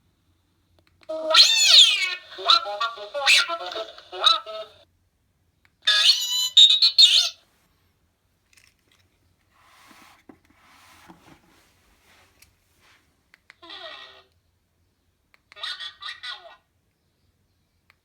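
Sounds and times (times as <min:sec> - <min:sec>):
robot beeps and warbling chirps: 0:01.1 - 0:04.6.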